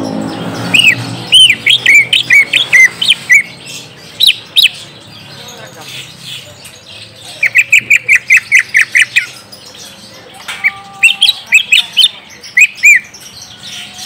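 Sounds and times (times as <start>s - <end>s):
bird rising and falling notes: 0.0s - 4.8s
bird calling sharp notes: 0.0s - 4.9s, 7.2s - 9.5s, 10.4s - 13.2s.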